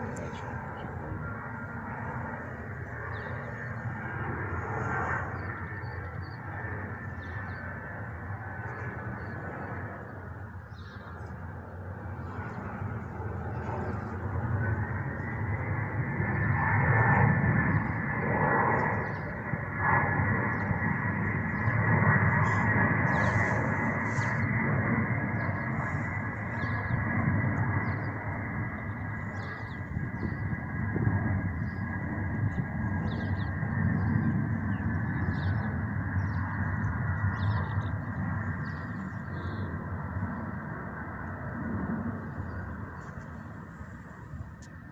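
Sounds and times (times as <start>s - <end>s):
jet engine rumble with whine: 0.0s - 44.9s
small birds chirping: 9.2s - 11.4s, 21.5s - 24.6s.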